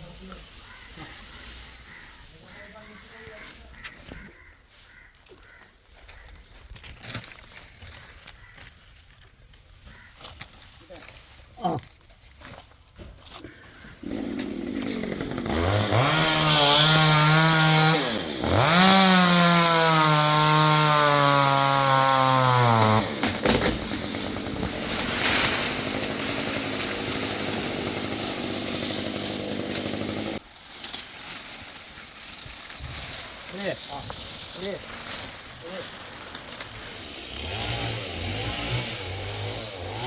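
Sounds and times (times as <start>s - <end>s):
chainsaw revving: 14.0s - 30.4s, 36.6s - 40.0s.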